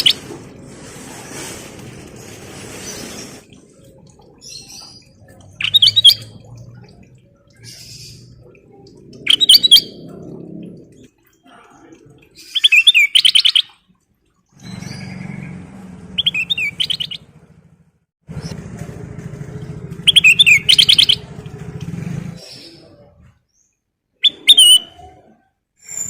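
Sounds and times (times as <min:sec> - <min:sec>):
bird chirping rapidly: 0:00.0 - 0:00.2, 0:04.5 - 0:06.4, 0:09.3 - 0:10.0, 0:12.4 - 0:13.7, 0:16.1 - 0:17.3, 0:20.0 - 0:21.3
low steady motor hum: 0:06.2 - 0:11.1, 0:21.1 - 0:22.4.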